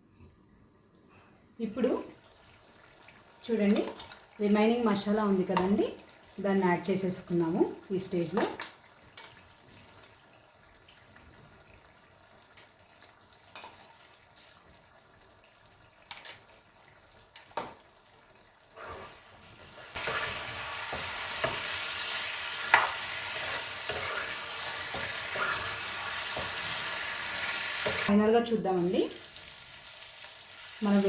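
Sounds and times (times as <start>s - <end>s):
loud sizzle: 1.7s - 31.0s
spatula scraping a pan: 18.8s - 28.1s.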